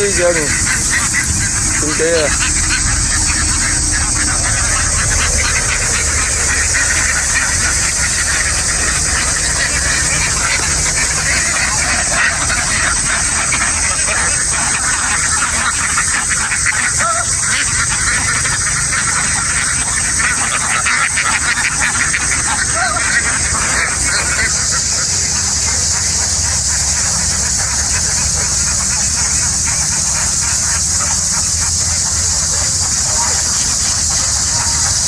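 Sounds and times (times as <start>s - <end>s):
low hum: 0.0s - 20.6s
ducks calling and chattering: 0.0s - 35.0s
steady high hiss: 0.0s - 35.0s.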